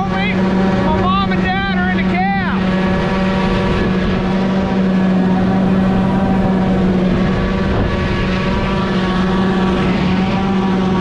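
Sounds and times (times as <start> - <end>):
heavy farm machinery droning: 0.0 - 11.0.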